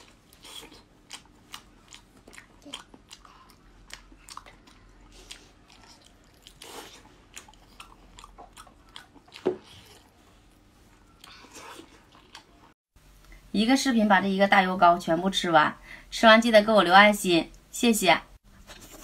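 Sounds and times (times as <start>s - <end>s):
chewing with mouth clicks: 0.0s - 12.8s.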